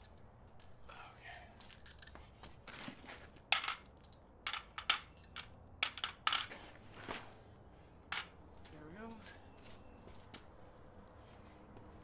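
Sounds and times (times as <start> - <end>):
metal tools clinking: 3.5 - 6.7.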